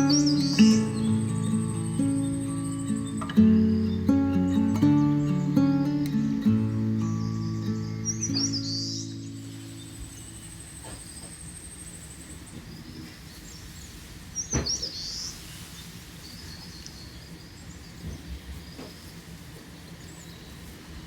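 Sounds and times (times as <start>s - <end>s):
loud bird call: 0.0s - 11.0s
birds chirping: 0.0s - 15.4s.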